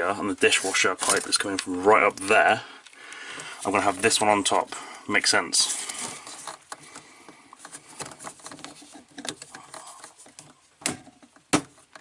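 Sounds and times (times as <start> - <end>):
plastic hoses rustling: 0.0 - 12.0
plastic scraping: 0.4 - 2.6, 5.6 - 12.0.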